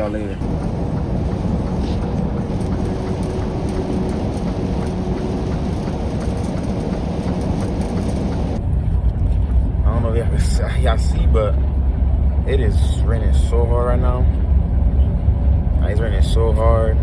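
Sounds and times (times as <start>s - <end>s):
hard rain tapping on truck cab: 0.0s - 8.6s
truck running on road: 0.0s - 17.0s.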